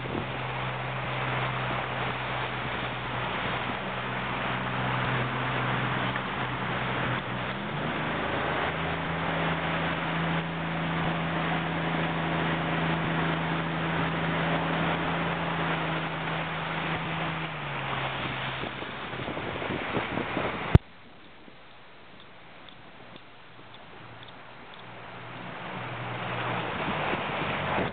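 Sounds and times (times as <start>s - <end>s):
motorboat engine running: 0.0s - 27.9s
wind and water rushing: 0.0s - 27.9s
click: 22.2s - 24.9s.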